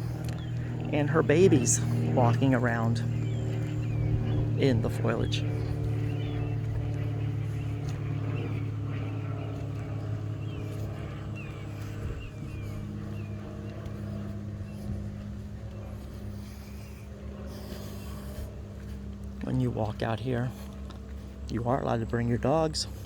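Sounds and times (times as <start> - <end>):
bird chirps: 0.0 - 14.8
engine droning: 0.0 - 23.0.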